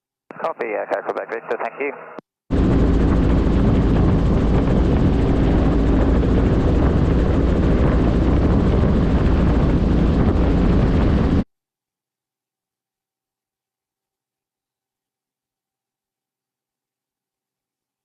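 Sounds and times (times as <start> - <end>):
helicopter rotor and engine: 2.5 - 11.4.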